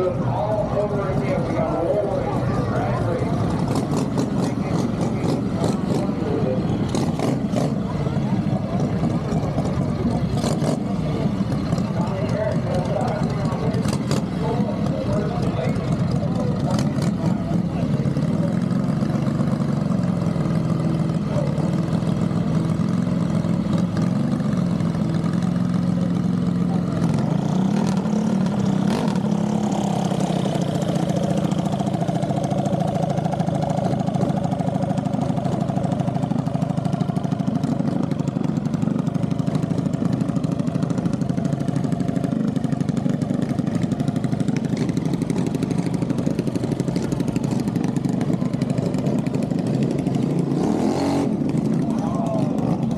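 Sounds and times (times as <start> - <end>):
engine idling: 0.0 - 52.9.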